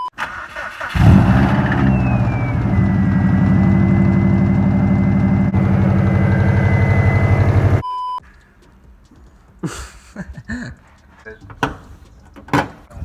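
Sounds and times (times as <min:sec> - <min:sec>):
car engine idling lumpy: 0:01.0 - 0:07.8
high whine: 0:01.1 - 0:07.8.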